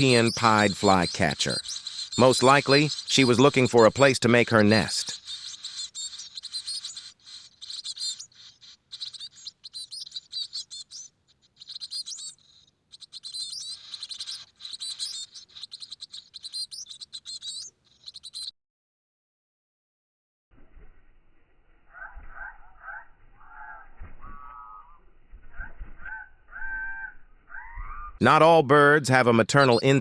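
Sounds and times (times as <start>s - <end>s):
chicks chirping: 0.0s - 18.5s, 29.6s - 30.0s.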